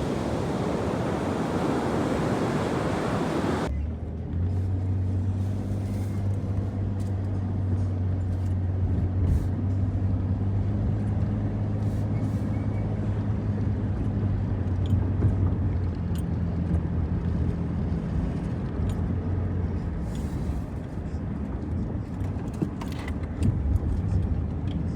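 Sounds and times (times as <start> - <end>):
car engine hum: 0.0 - 24.9
road noise: 0.0 - 24.9.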